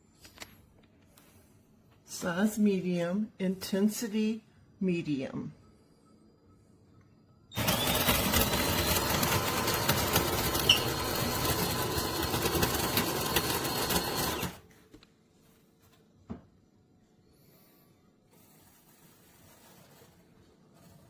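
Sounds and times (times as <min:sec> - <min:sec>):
coffee grinder grinding: 0:07.5 - 0:14.7.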